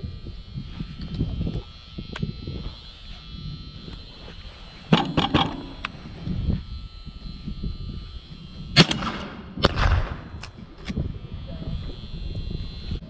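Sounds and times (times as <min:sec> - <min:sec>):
sharp cracks: 0:08.8 - 0:11.0.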